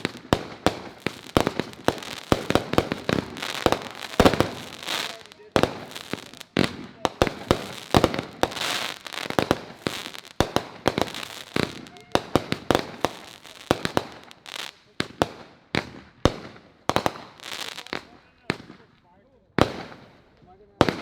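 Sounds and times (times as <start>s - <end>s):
firework crackling: 0.0s - 18.8s
firework bangs: 0.0s - 18.9s, 19.6s - 21.0s.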